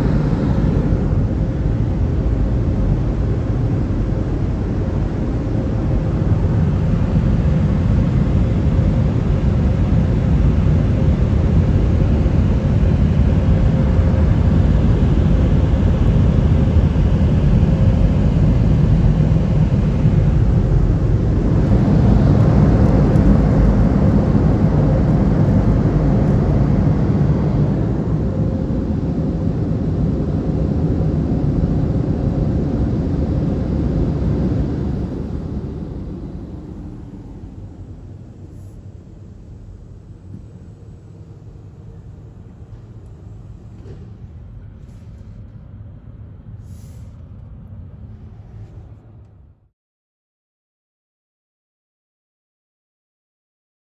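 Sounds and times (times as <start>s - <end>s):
car wash machinery and spray: 0.0s - 49.5s.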